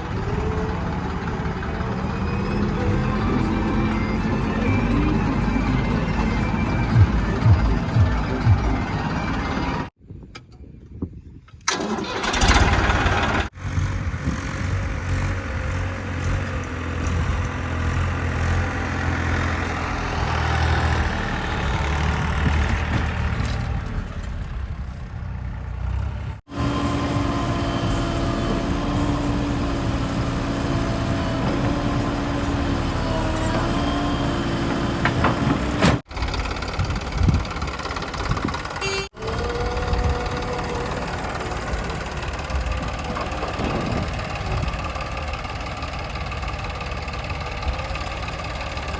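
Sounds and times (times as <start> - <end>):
heavy diesel engines rumbling: 0.0 - 10.0, 11.6 - 48.9.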